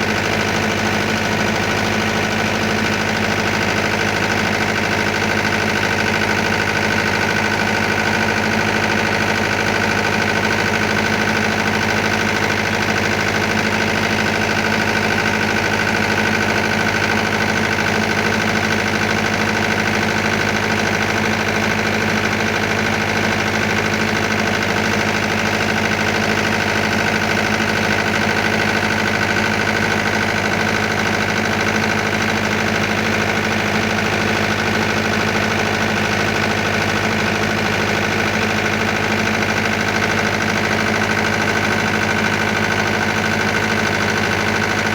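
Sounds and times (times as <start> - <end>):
diesel generator running: 0.0 - 44.9.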